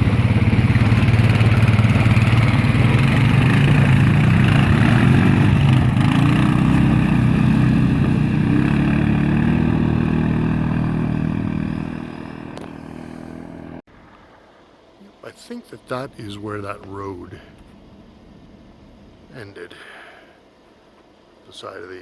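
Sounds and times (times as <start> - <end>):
vehicle engine pulsing rumble: 0.0 - 13.8.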